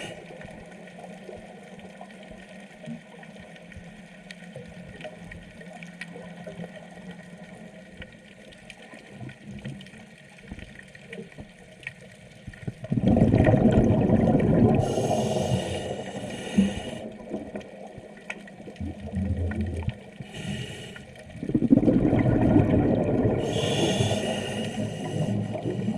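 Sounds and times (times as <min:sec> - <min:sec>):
faint underwater hum: 0:00.0 - 0:25.9
faint clicks: 0:00.2 - 0:12.9, 0:15.5 - 0:21.4
scuba regulator bubbles rushing: 0:12.8 - 0:20.4, 0:21.2 - 0:25.9
high hiss: 0:23.4 - 0:25.4.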